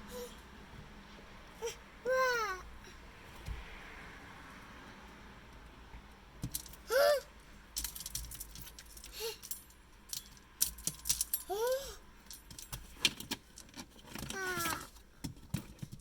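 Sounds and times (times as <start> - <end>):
child squealing: 1.6 - 2.7, 6.9 - 7.3, 11.5 - 12.0, 14.4 - 14.9
objects clicking and rattling: 6.4 - 7.0, 7.7 - 16.0.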